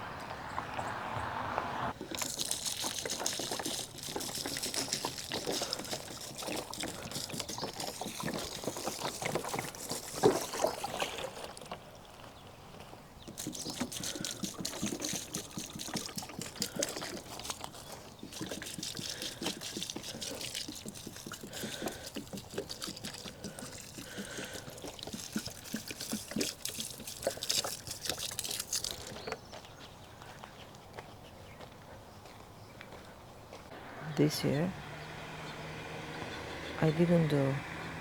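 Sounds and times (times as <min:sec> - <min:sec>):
water splashing onto plants: 0:02.1 - 0:11.7, 0:13.4 - 0:29.2.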